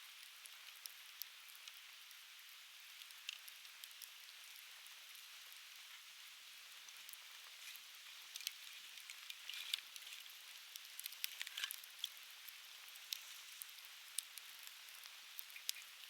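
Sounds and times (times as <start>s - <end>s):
firewood crackling and popping: 2.8s - 6.0s, 6.8s - 16.0s.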